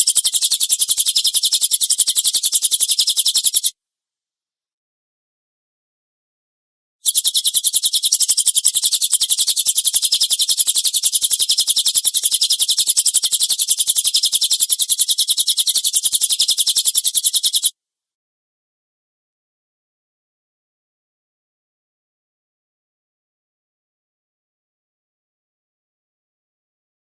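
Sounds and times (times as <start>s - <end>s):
songbird rattling trill: 0.0s - 3.7s, 7.0s - 17.7s.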